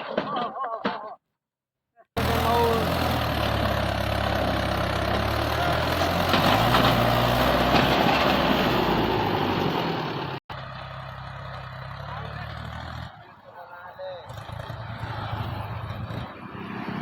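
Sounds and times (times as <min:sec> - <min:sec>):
tractor diesel engine running: 0:02.2 - 0:16.4
quieter engine sound: 0:08.6 - 0:13.3.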